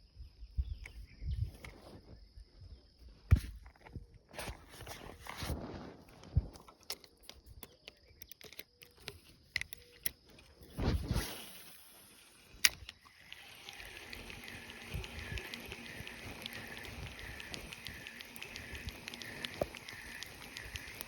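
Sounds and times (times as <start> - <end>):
small clicks of gear: 6.2 - 21.0.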